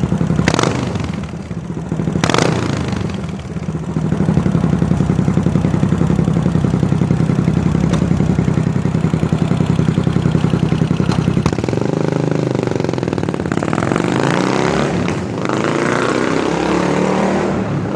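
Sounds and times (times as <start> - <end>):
motorcycle engine idling and revving: 0.0 - 17.9.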